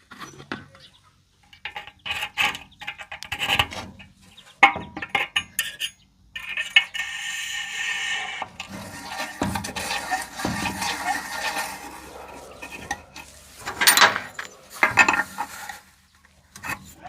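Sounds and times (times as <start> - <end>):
small metal objects clinking: 8.6 - 15.9
rushing rattling noise: 8.6 - 16.0.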